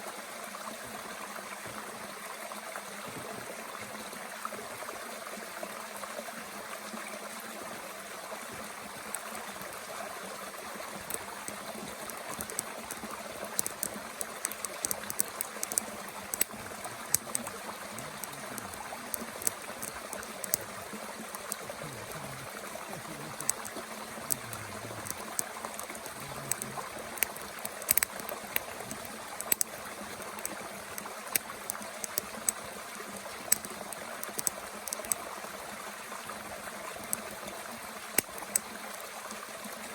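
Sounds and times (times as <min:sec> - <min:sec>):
mountain stream babbling: 0:00.0 - 0:39.9
twigs crackling in a camp stove: 0:08.3 - 0:39.1.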